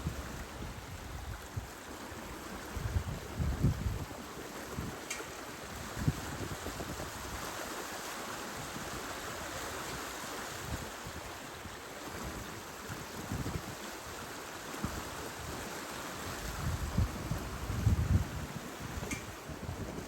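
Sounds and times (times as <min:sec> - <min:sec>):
wind buffeting microphone: 0:00.0 - 0:05.0, 0:05.6 - 0:07.5, 0:16.3 - 0:20.0
water rushing along a hull: 0:00.0 - 0:20.0.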